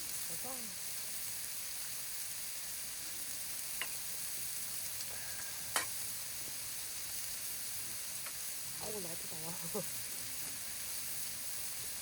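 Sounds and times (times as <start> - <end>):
food sizzling in a hot pan: 0.0 - 12.0.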